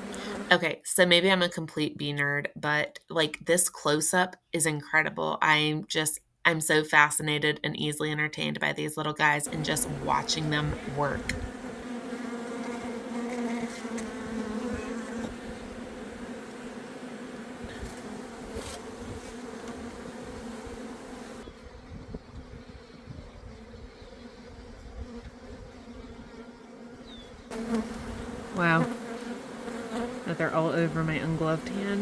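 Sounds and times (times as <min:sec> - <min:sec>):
honeybees buzzing: 0:00.0 - 0:00.7, 0:08.7 - 0:32.0.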